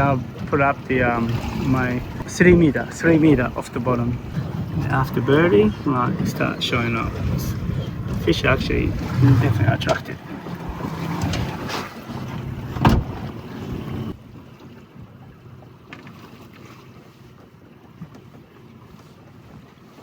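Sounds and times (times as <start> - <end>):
wind on microphone: 0.0 - 14.2
sea noise: 0.0 - 20.0.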